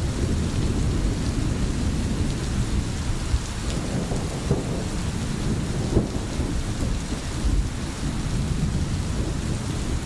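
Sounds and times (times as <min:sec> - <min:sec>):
steady rain hiss: 0:00.0 - 0:10.0
thunder rumbling: 0:03.6 - 0:10.0.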